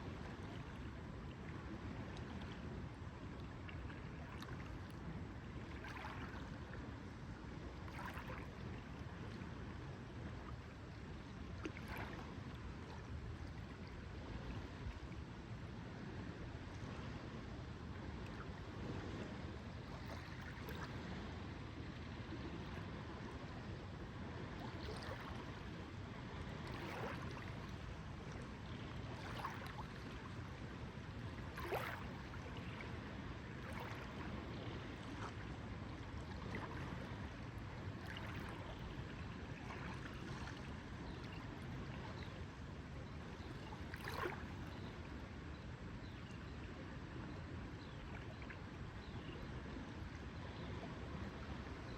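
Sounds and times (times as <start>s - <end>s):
lake water lapping: 3.4s - 6.8s, 7.5s - 9.6s, 11.5s - 14.9s, 19.8s - 21.2s, 24.4s - 42.4s, 43.3s - 45.0s
small splashes and gurgles: 5.6s - 6.6s, 7.9s - 8.7s, 11.6s - 13.0s, 19.9s - 21.1s, 24.6s - 25.6s, 26.6s - 27.8s, 28.9s - 30.5s, 31.2s - 37.3s, 38.0s - 40.7s, 43.6s - 44.8s.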